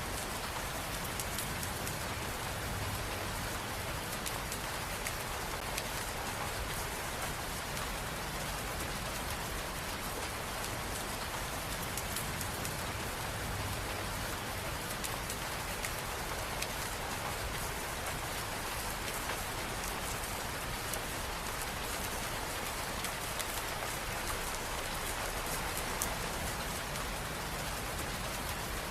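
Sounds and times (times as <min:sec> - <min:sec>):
steady rain with pattering drops: 0:00.0 - 0:28.9.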